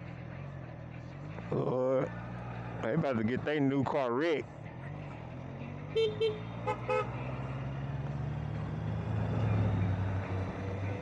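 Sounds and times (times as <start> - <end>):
low engine drone in traffic: 0.0 - 11.0
vehicle horn beeps: 6.0 - 7.2.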